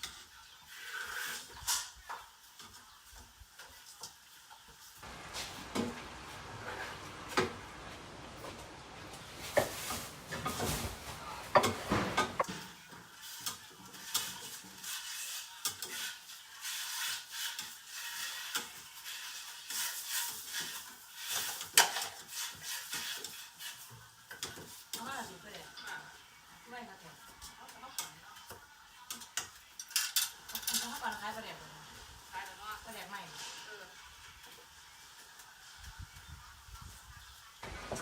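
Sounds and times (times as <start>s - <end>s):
food frying hiss: 0.0s - 38.0s
spatula scraping frying pan: 0.1s - 3.0s, 5.0s - 8.3s, 9.2s - 25.1s.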